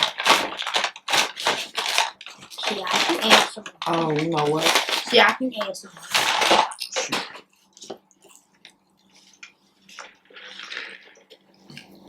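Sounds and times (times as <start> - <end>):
wet chewing: 7.6 - 12.0.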